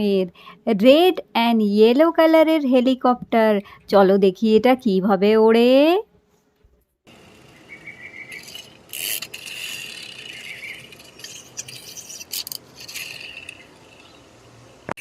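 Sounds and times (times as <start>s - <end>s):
plastic toy rattling and scraping: 8.3s - 14.3s.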